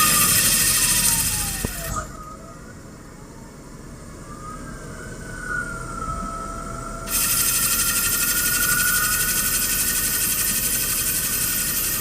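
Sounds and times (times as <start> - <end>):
lathe machining steel whine: 0.0 - 2.4, 7.1 - 12.0.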